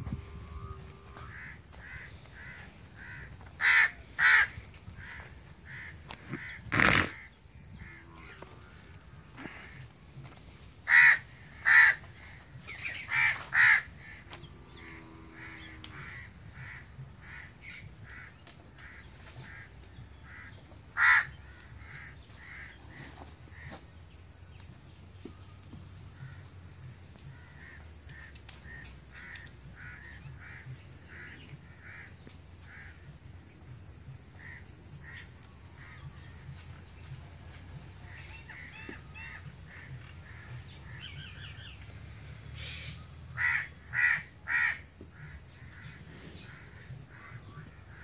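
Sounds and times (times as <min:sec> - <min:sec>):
birds calling in short calls: 0:00.6 - 0:09.9.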